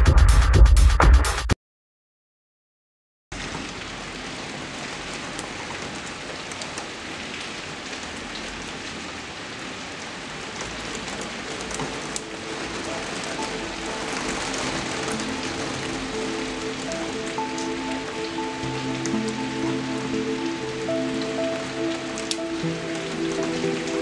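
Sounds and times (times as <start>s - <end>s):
electronic music: 0.0s - 1.5s, 12.2s - 24.0s
steady rain falling: 3.3s - 24.0s.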